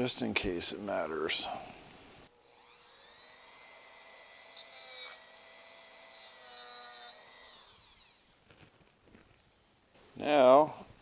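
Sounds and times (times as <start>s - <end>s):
rotary tool scoring metal: 2.5s - 8.3s.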